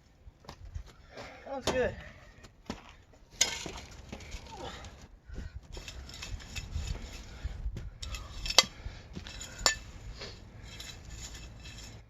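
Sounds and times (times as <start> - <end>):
shovel scraping dirt and stones: 3.3 - 5.0, 5.6 - 12.0
shovel clanking: 3.4 - 4.0, 8.0 - 12.0.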